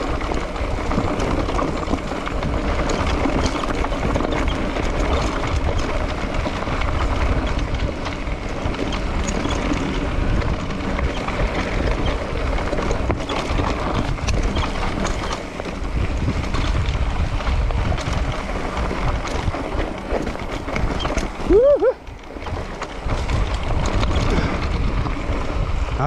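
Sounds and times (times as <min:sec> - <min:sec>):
clicks and rattles from bike: 0:00.0 - 0:26.0
wind buffeting microphone: 0:00.0 - 0:26.0.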